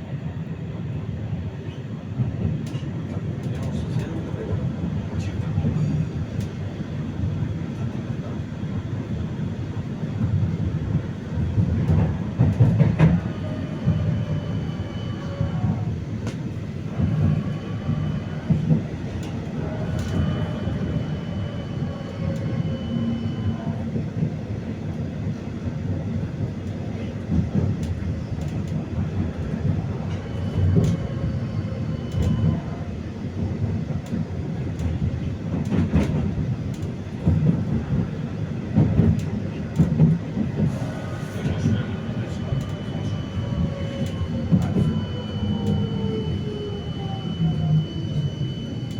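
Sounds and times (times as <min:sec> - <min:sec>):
tram wheels rumbling on rails: 0:00.0 - 0:48.9
traction motor whine: 0:40.8 - 0:48.9.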